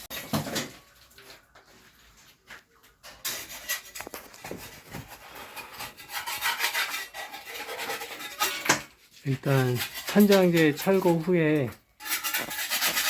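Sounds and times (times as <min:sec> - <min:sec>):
hand tool scraping ceiling: 0:03.0 - 0:13.0.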